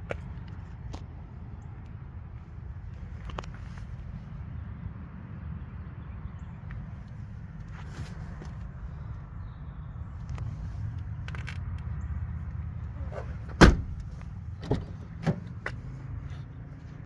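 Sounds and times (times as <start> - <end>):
car door shutting: 13.0 - 15.8.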